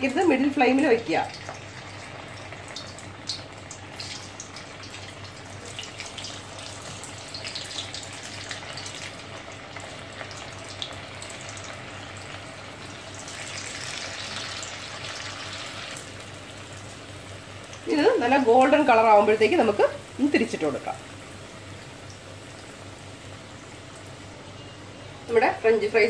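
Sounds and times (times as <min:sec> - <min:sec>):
potatoes sizzling in hot oil: 0:00.0 - 0:24.3.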